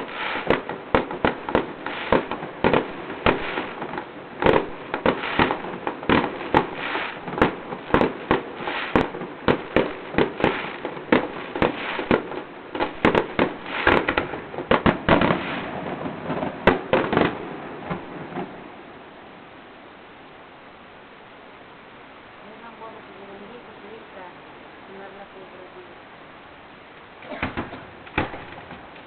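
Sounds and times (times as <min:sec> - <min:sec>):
fireworks bangs and cracks: 0:00.0 - 0:18.8, 0:27.2 - 0:29.0.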